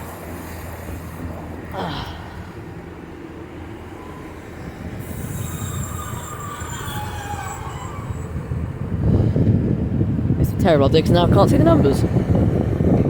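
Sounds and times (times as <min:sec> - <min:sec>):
train rumbling past: 0:00.0 - 0:13.0
high metallic squeal: 0:03.8 - 0:09.3.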